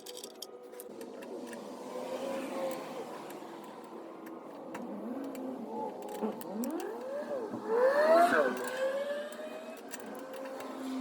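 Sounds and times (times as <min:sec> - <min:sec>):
small motor whirring: 0:04.8 - 0:11.0.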